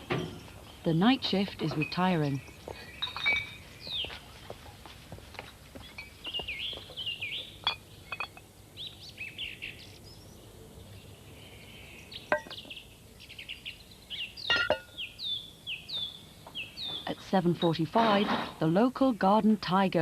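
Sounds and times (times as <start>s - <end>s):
garden birds singing and calling: 0.0s - 20.0s.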